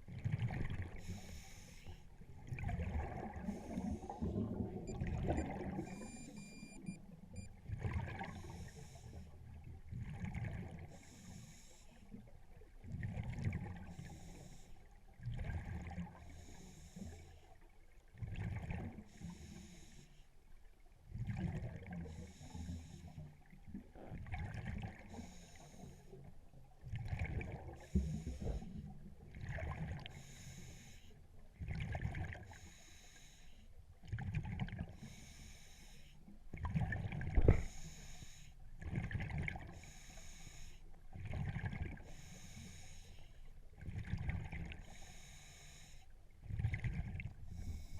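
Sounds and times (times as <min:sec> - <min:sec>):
regulator inhale hiss: 0:01.0 - 0:02.0, 0:08.4 - 0:09.3, 0:11.0 - 0:12.0, 0:14.0 - 0:14.8, 0:16.3 - 0:17.4, 0:19.1 - 0:20.2, 0:22.1 - 0:23.2, 0:25.1 - 0:26.2, 0:30.1 - 0:31.2, 0:32.5 - 0:33.7, 0:35.0 - 0:36.2, 0:37.5 - 0:38.6, 0:39.8 - 0:40.8, 0:42.1 - 0:43.4, 0:44.8 - 0:46.1, 0:47.5 - 0:47.9.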